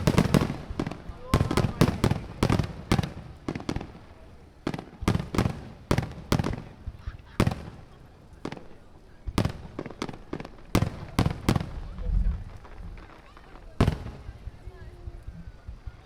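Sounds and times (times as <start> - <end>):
fireworks bursting with bangs: 0.0 - 16.0.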